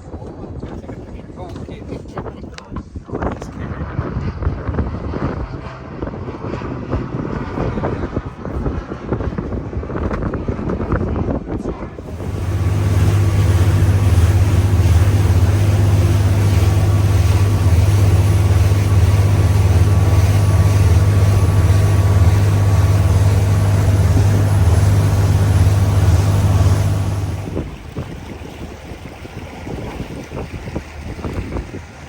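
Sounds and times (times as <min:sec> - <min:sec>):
rushing wind: 0:03.8 - 0:32.0
water hiss: 0:12.0 - 0:27.7
boat motor droning: 0:12.0 - 0:32.0.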